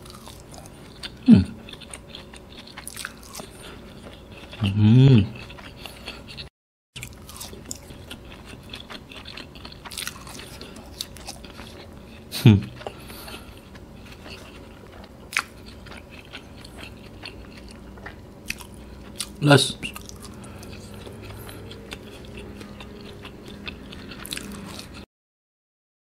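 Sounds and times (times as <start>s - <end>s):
close-up chewing: 0.0s - 25.1s
person humming: 1.2s - 1.6s, 4.6s - 5.4s.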